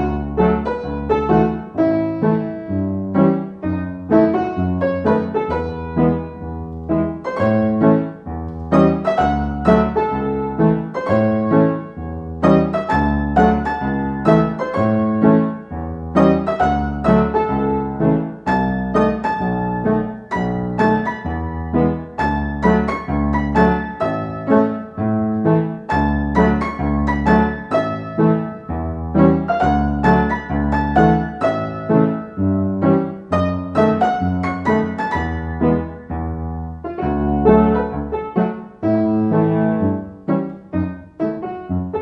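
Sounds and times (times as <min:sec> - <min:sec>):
solo piano playing: 0:00.0 - 0:42.0.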